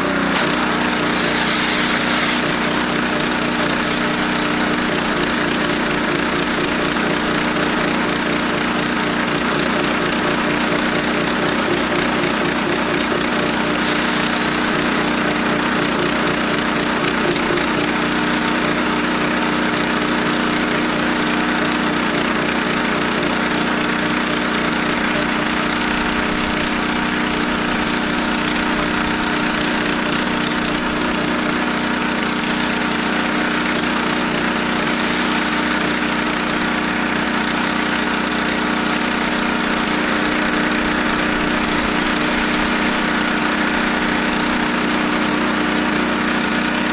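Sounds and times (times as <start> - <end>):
pressure washer engine running: 0.0 - 46.9
hiss of spray: 0.3 - 6.6, 13.6 - 15.2, 34.8 - 36.0.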